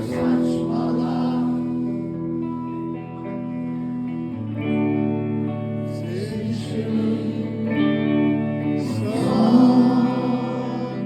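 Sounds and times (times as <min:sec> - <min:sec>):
man singing: 0:00.0 - 0:02.2, 0:05.9 - 0:08.0, 0:08.8 - 0:11.0
guitar chords: 0:00.0 - 0:11.0.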